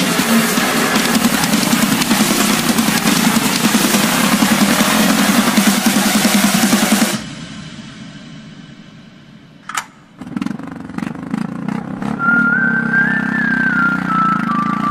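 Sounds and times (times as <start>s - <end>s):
motorcycle engine running: 0.0s - 7.6s, 9.4s - 14.9s
wavering tone: 12.2s - 14.9s.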